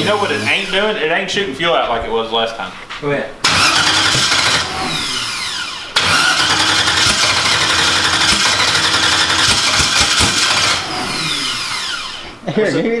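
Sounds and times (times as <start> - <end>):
race car engine starting and dying: 0.0 - 1.2, 3.4 - 12.5.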